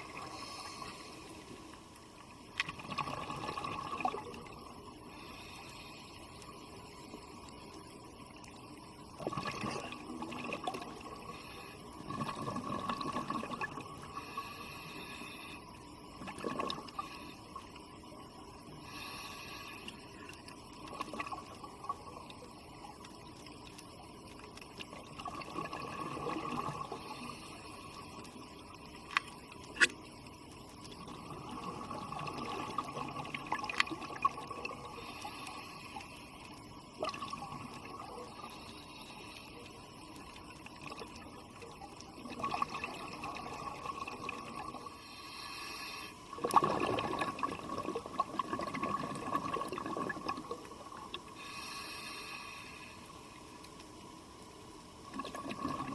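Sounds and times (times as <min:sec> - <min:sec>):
underwater bubbles gurgling: 0:00.0 - 0:55.9.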